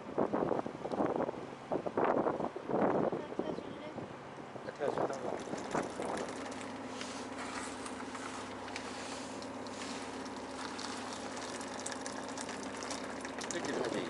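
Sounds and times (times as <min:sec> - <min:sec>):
boat engine humming: 0:00.0 - 0:14.0
wind: 0:00.0 - 0:14.0
water noise: 0:04.7 - 0:14.0.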